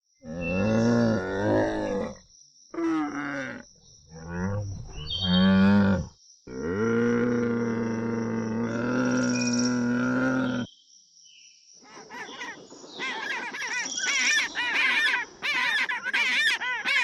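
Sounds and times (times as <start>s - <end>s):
large animal bellowing: 0.2s - 2.2s, 2.8s - 10.7s.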